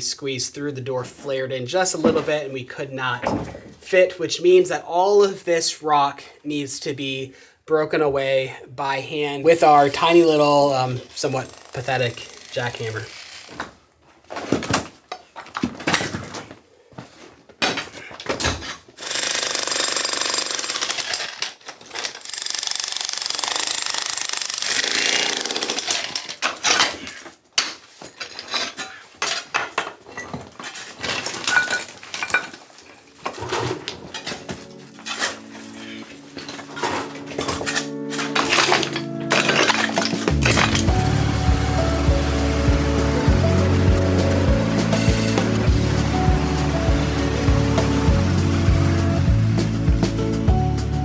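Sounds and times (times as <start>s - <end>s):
jackhammer breaking rock: 11.0s - 13.7s, 19.0s - 27.0s, 38.3s - 48.3s
music: 33.1s - 51.0s.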